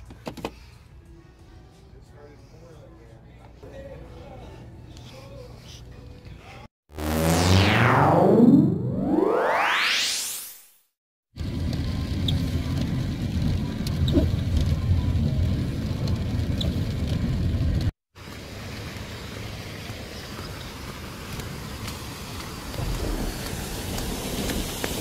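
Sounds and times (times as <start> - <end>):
rain: 11.8 - 25.0.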